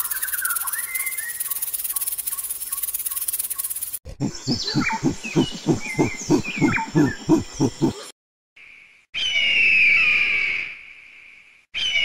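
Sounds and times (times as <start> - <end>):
insect chirring: 0.0 - 4.0
birds chirping: 0.0 - 8.1
monkey grunting calls: 4.1 - 8.2.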